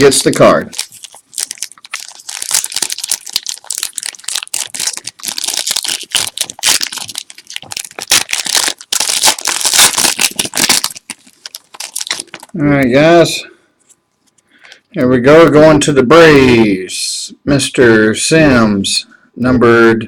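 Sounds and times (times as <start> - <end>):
foil wrapper crinkling and tearing: 0.0 - 12.6.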